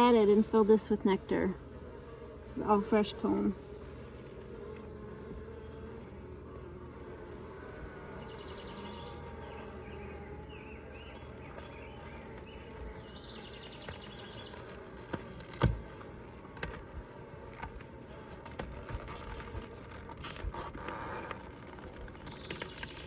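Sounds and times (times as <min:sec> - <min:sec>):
honeybees buzzing: 0:00.0 - 0:23.0
knocks on wooden hive frames: 0:13.7 - 0:16.9.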